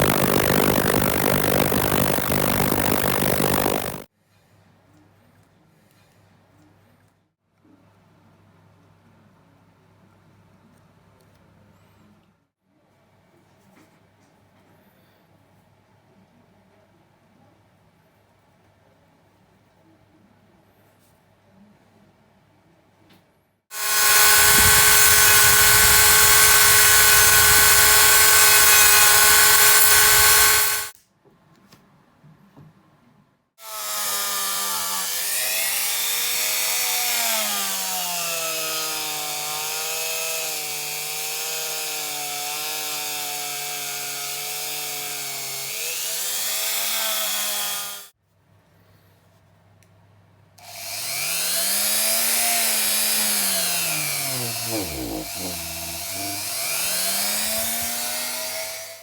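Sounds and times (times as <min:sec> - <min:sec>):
small electric power tool running: 0:00.0 - 0:04.1, 0:23.7 - 0:31.0, 0:33.6 - 0:48.1, 0:50.6 - 0:59.0.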